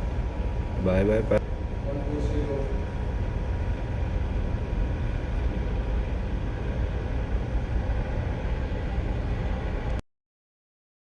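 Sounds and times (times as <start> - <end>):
helicopter engine and rotors: 0.0 - 10.0.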